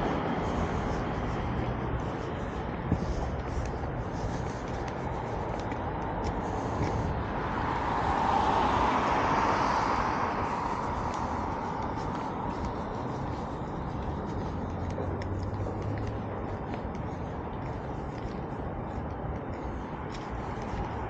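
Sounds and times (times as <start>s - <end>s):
street traffic: 0.0s - 21.0s
car passing close by: 7.4s - 10.9s.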